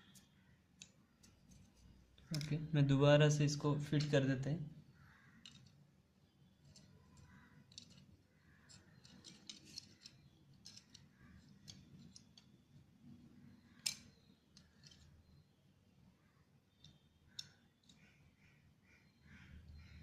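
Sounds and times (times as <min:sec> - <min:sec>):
plastic parts clicking: 0:05.4 - 0:05.8, 0:06.6 - 0:12.6, 0:13.7 - 0:15.2, 0:16.8 - 0:18.0.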